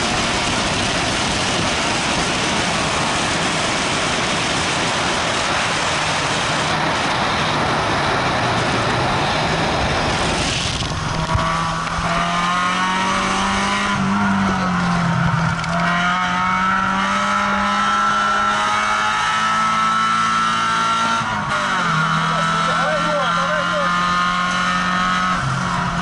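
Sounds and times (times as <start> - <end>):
wind rush: 0.0 - 17.0
car engine under load: 0.0 - 26.0.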